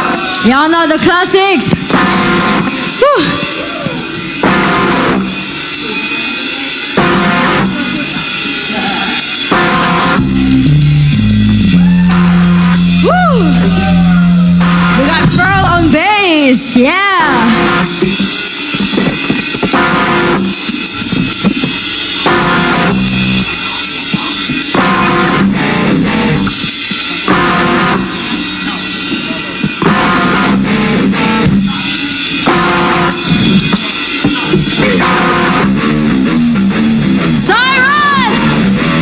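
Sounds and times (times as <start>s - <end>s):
bass guitar: 0.0s - 39.0s
drum kit: 0.0s - 39.0s
electric guitar: 1.6s - 5.7s, 6.9s - 39.0s.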